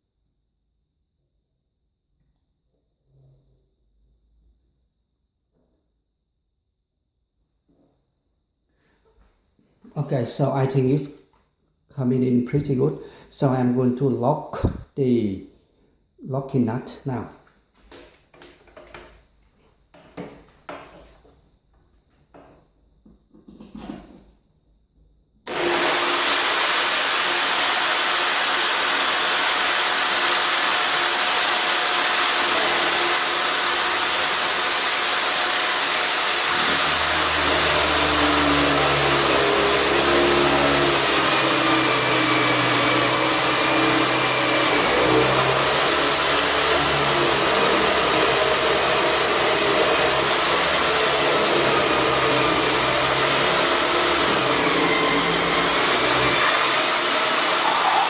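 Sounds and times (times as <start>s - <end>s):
drill bit rumble under load: 25.5s - 58.0s
electric drill whining: 25.5s - 58.0s.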